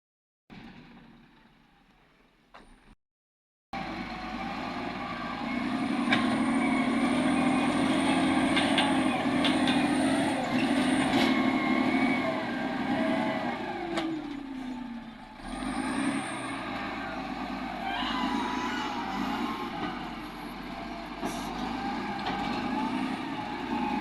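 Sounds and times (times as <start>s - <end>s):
heavy vehicle engine running: 0.5s - 2.9s, 3.8s - 24.0s.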